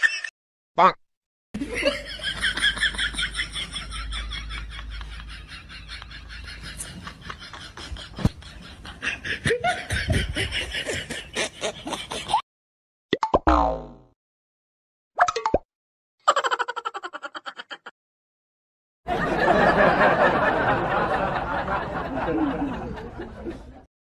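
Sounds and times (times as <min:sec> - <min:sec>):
rapid rhythmic laughter: 0:01.6 - 0:12.4, 0:16.3 - 0:17.9, 0:19.1 - 0:23.9.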